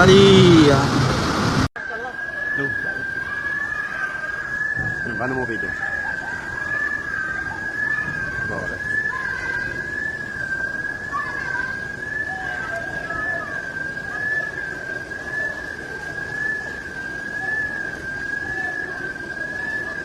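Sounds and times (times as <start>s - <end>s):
rushing background noise: 0.0s - 20.0s
high alarm tone: 1.8s - 20.0s.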